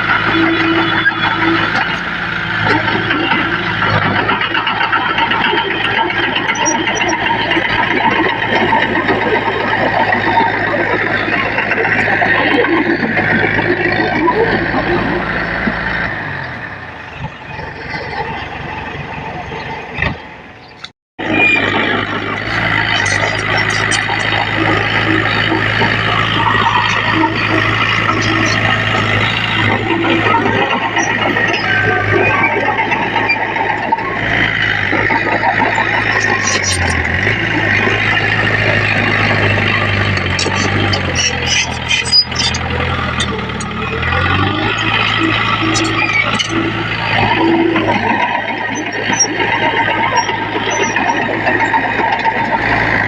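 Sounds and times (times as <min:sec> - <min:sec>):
heavy machinery diesel engines: 0:00.0 - 0:53.0
mechanical clatter: 0:20.7 - 0:53.0.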